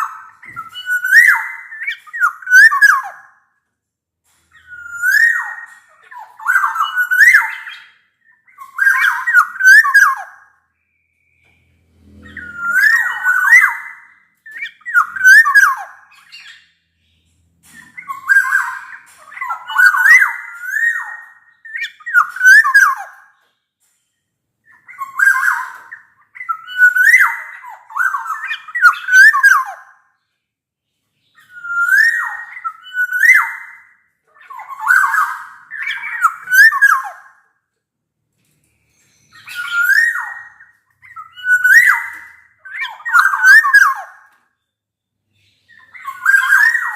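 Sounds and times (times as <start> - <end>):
bird singing fluting whistles: 0.0 - 3.3, 4.6 - 5.7, 12.2 - 16.7, 17.8 - 23.3, 24.7 - 29.9, 31.4 - 37.3, 39.3 - 44.2, 45.7 - 46.9.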